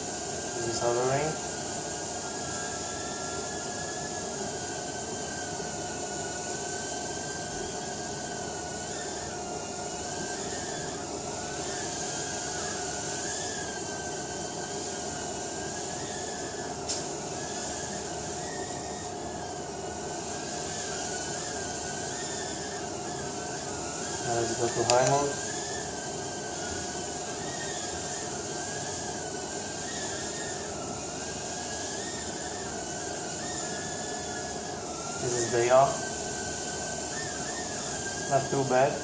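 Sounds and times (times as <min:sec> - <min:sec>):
quadcopter motors whining: 0:00.0 - 0:01.5, 0:02.2 - 0:39.0
sharp click: 0:24.8 - 0:25.2.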